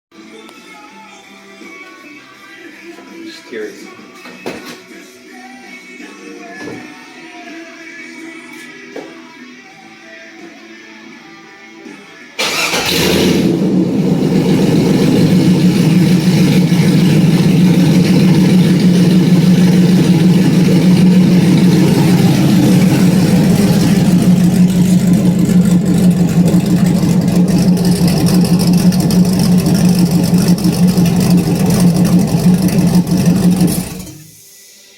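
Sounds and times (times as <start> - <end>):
car engine starting and idling: 12.4 - 34.4.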